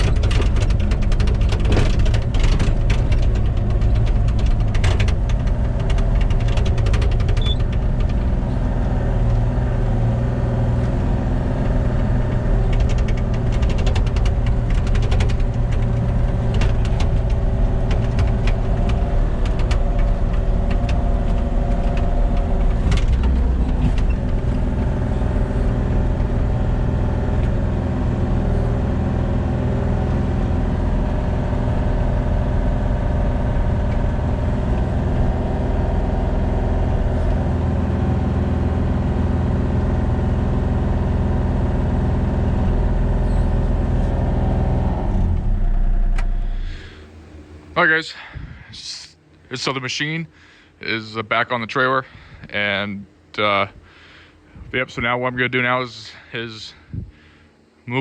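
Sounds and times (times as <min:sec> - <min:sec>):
sharp clicks and clanks: 0:00.0 - 0:27.8
engine running: 0:00.0 - 0:49.1, 0:51.4 - 0:58.0.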